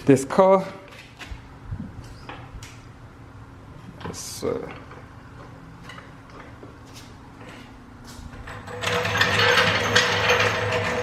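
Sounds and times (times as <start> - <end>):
car jack rattling: 8.4 - 11.0.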